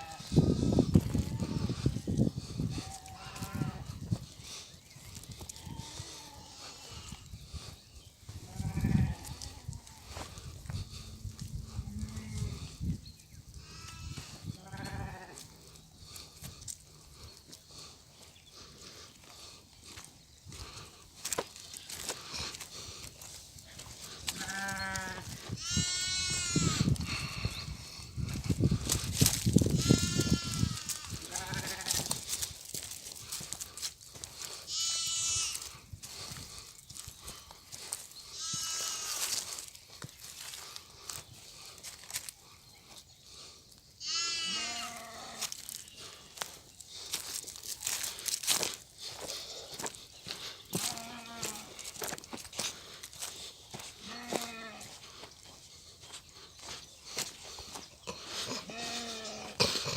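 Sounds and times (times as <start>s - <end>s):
sheep bleating: 1.1s - 1.9s, 2.8s - 4.0s, 8.5s - 9.9s, 13.6s - 15.4s, 24.3s - 27.0s, 29.8s - 32.1s, 34.7s - 35.7s, 38.3s - 39.3s, 44.0s - 45.6s, 50.8s - 51.8s, 54.0s - 54.9s, 58.6s - 59.9s
leaves and twigs rustling: 18.6s - 25.6s, 26.2s - 43.1s, 44.6s - 59.2s.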